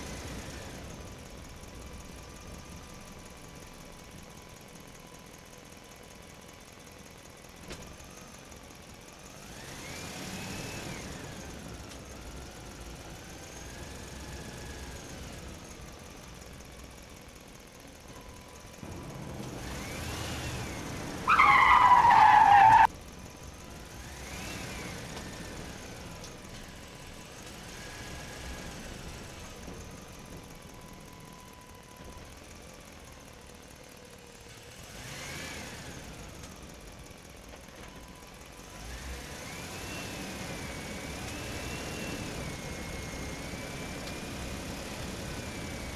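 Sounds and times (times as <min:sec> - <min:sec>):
vehicle engine running: 0:00.0 - 0:45.9
high wavering screech: 0:21.3 - 0:22.9.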